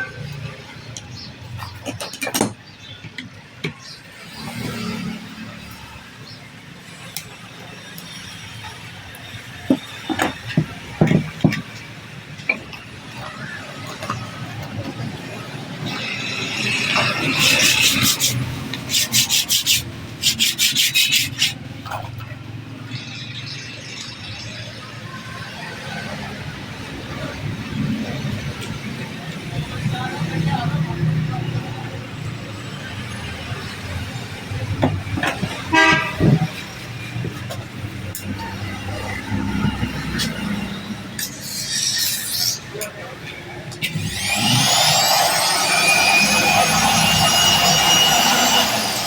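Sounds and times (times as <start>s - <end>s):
road traffic: 0.0s - 49.0s
abrasive hand strokes scraping: 17.0s - 21.8s
vehicle horn toot: 35.7s - 36.4s.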